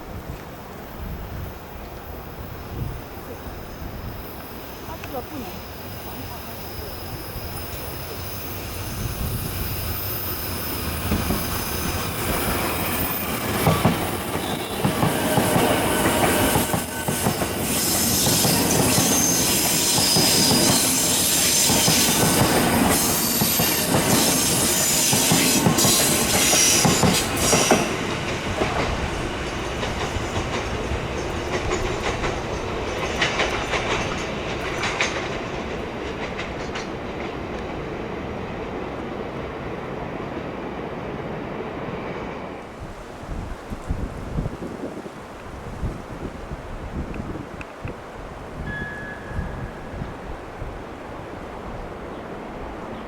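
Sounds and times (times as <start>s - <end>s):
electric train passing at speed: 0.0s - 53.0s
high wheel squeal: 4.2s - 28.0s.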